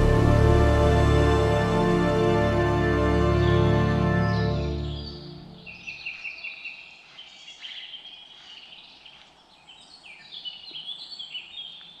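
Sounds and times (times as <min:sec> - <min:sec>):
songbirds chirping: 0:03.1 - 0:12.0
faint outdoor background hiss: 0:04.4 - 0:12.0.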